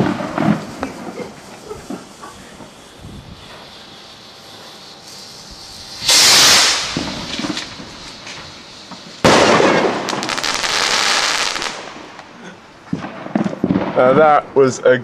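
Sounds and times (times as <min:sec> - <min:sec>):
sharp firework bang: 0:00.0 - 0:03.8, 0:05.8 - 0:12.2, 0:12.9 - 0:14.3
fireworks bursting: 0:00.0 - 0:14.7.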